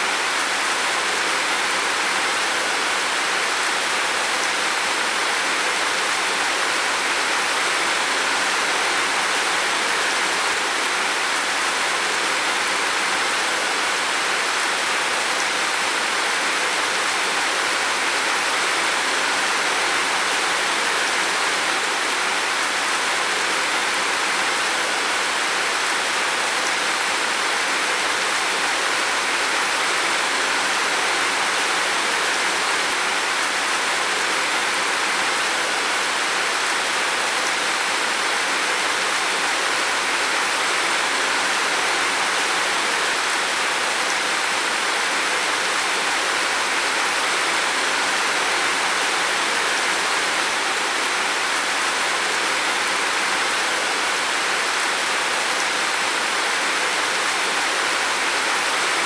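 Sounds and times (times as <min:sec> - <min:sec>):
heavy rain on a roof: 0:00.0 - 0:59.0.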